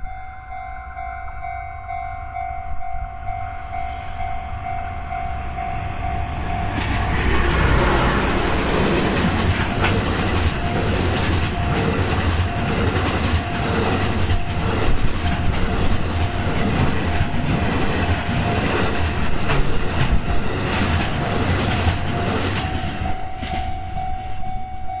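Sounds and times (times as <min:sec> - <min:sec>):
steady high tone: 0:00.0 - 0:14.7
freight train passing: 0:00.0 - 0:25.0
wheels clicking over rail joints: 0:06.7 - 0:24.9.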